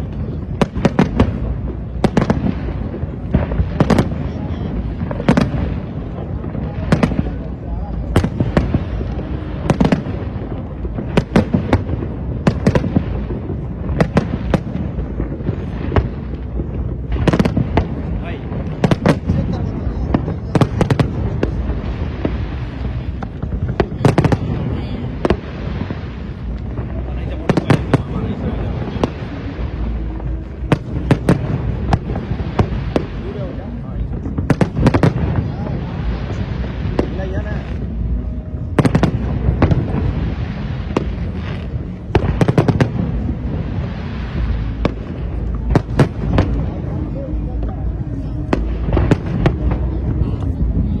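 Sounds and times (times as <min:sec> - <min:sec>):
fireworks bangs: 0:00.0 - 0:51.0
fireworks low rumble: 0:00.0 - 0:51.0.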